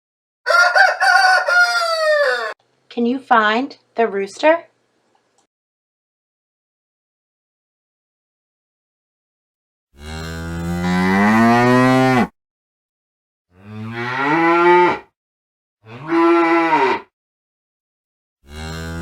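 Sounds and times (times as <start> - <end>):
cow mooing: 10.0 - 12.3, 13.5 - 15.1, 15.8 - 17.1, 18.4 - 19.0.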